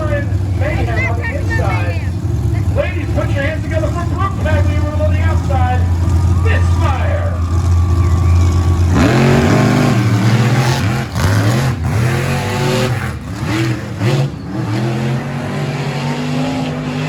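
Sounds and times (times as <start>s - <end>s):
monster truck engines revving: 0.0s - 17.0s.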